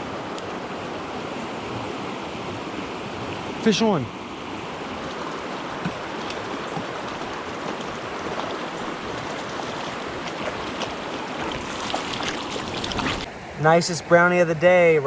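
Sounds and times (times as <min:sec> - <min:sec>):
creek flowing: 0:00.0 - 0:15.0.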